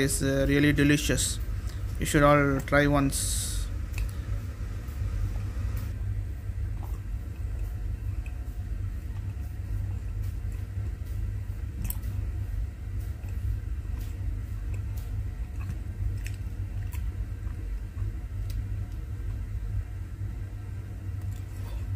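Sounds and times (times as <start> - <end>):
low rumble: 1.4 - 21.9
person chewing: 6.7 - 11.0, 13.0 - 19.5.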